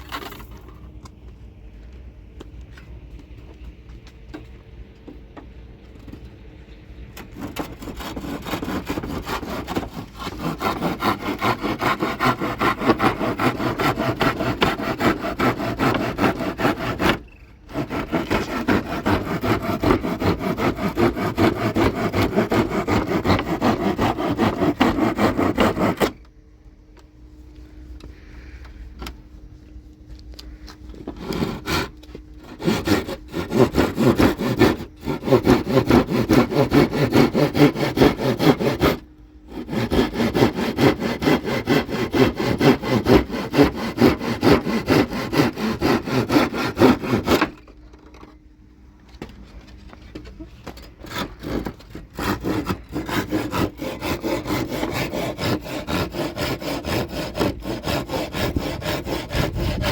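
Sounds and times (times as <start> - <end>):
saw cutting through wood: 7.3 - 26.2, 31.0 - 47.7, 51.0 - 59.9.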